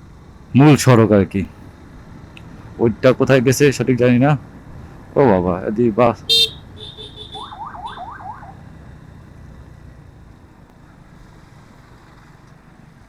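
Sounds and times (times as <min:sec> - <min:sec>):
engine and road rumble: 0:00.0 - 0:13.0
electronic horn chirps: 0:06.3 - 0:08.1.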